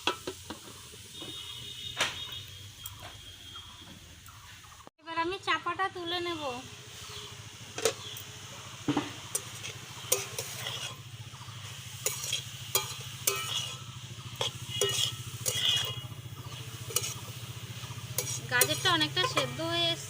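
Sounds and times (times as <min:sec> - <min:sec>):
faint sizzle: 0:00.0 - 0:20.0
spatula scraping a pan: 0:09.2 - 0:20.0.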